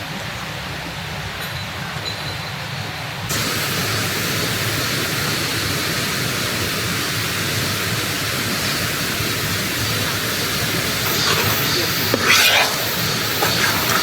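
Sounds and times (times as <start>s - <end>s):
stream rushing over rocks: 3.3s - 14.0s.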